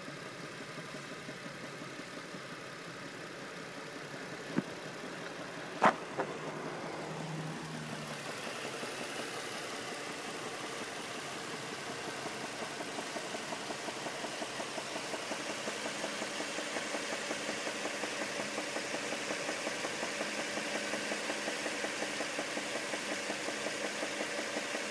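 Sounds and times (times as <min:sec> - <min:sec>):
car engine running: 0:00.0 - 0:24.9
pulsing engine knock or tick: 0:10.3 - 0:24.9.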